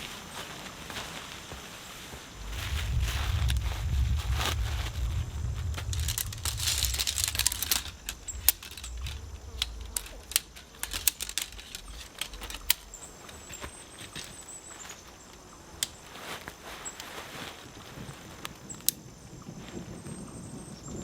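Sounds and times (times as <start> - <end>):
footsteps on dry leaves and twigs: 0.0 - 18.5
low rumble: 2.3 - 13.0.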